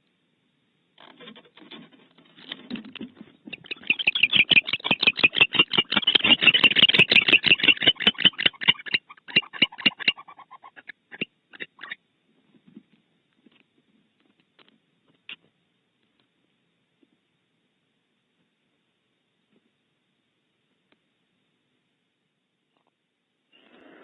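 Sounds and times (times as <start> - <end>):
barn owl clicking: 2.4 - 12.0.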